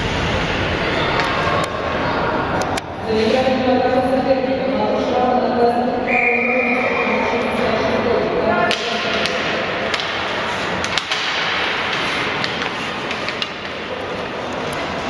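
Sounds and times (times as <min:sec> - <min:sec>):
hockey sticks clacking: 0:08.6 - 0:15.0
skates scraping ice: 0:08.7 - 0:15.0.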